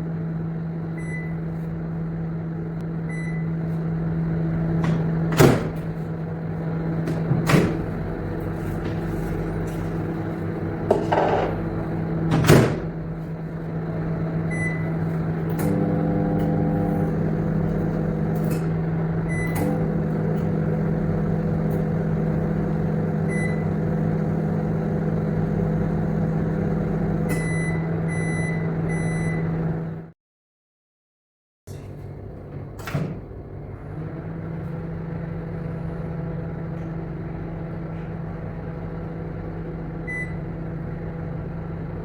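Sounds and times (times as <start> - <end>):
microwave oven humming: 0.0 - 30.2, 31.7 - 42.0
knocks: 10.9 - 11.6.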